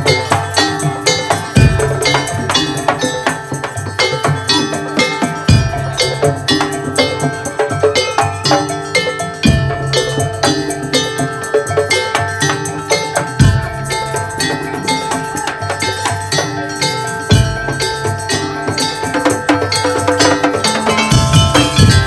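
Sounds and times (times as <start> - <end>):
ringing metal tones: 0.0 - 22.0
deep drum hits: 20.9 - 22.0.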